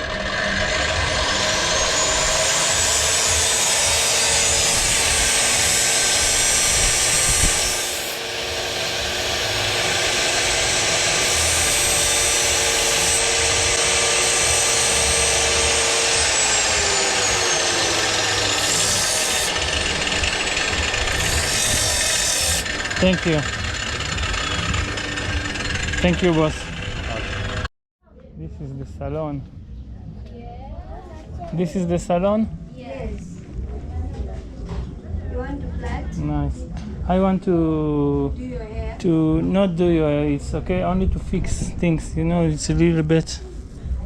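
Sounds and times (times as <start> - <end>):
grinding wheel sharpening metal: 0.0 - 27.7
high whine of grinding wheel: 0.0 - 27.7.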